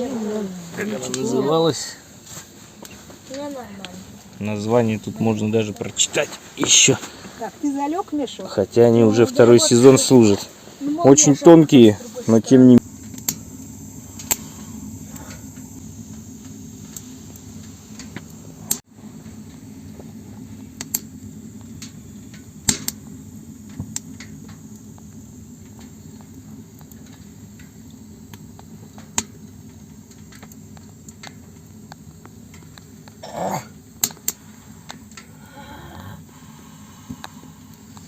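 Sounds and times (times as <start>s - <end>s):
wood stove burning with crackles: 0.0s - 38.0s.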